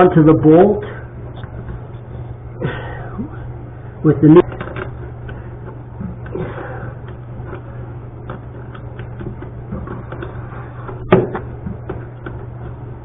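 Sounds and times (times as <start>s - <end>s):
steady low hum: 0.0s - 13.0s
loud knock: 11.1s - 11.4s.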